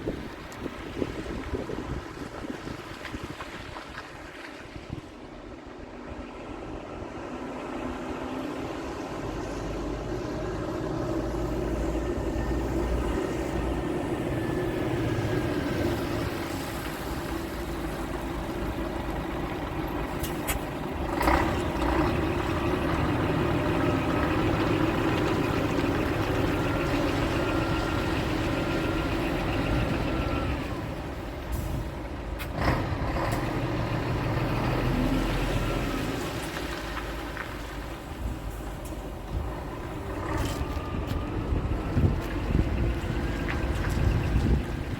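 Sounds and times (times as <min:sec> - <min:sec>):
large engine running: 0:38.1 - 0:44.9.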